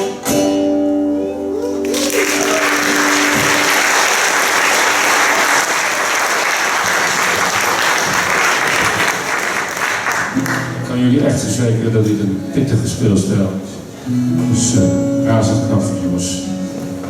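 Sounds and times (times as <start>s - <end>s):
audience applauding: 1.6s - 10.8s.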